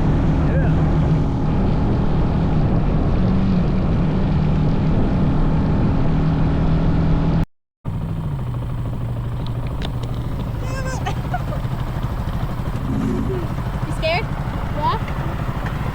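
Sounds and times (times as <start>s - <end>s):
small engine buzzing: 7.9s - 15.9s.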